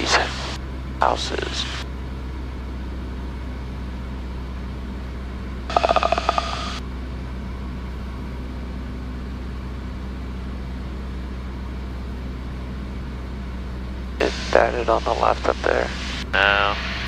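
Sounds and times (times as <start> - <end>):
aircraft engine drone: 0.0 - 17.0
buzzy electronic tone: 5.7 - 6.8.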